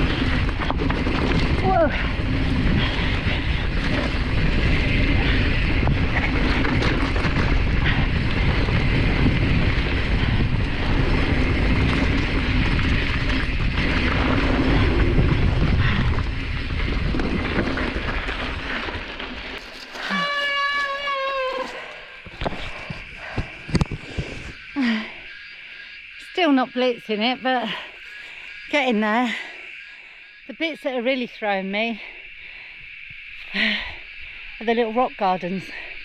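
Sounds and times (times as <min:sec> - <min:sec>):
wind rushing over microphone: 0:00.0 - 0:20.2, 0:21.0 - 0:27.4
bike clicks and rattles: 0:00.0 - 0:24.5
bike tyres rolling on dirt: 0:00.0 - 0:30.2.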